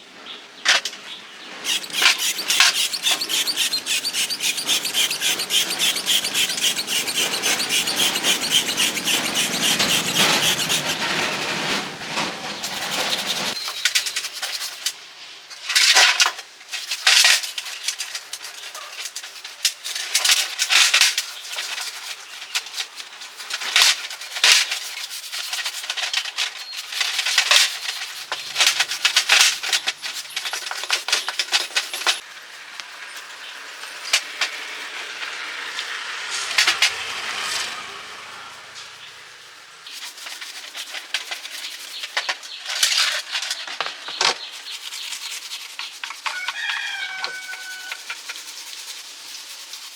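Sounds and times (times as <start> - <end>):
steady rubbing noise: 1.6 - 13.6
hand tools and metal parts clinking: 1.6 - 14.9, 15.7 - 34.6.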